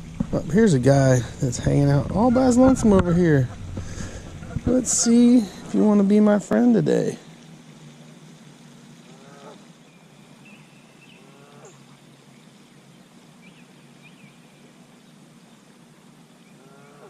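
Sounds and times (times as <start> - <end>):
deep animal calls: 1.1 - 5.8.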